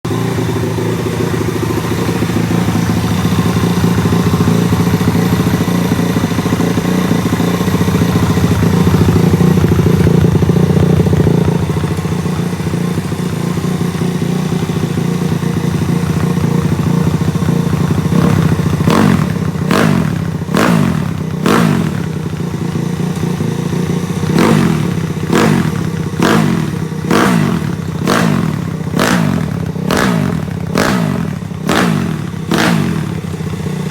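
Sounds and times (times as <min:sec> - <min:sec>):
motorbike engine revving: 0:00.1 - 0:33.9.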